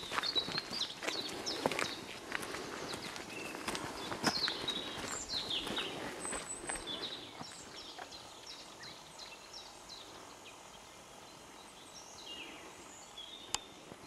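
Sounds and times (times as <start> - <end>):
footsteps on dirt trail: 0.0 - 9.4
small birds chirping: 0.0 - 14.0.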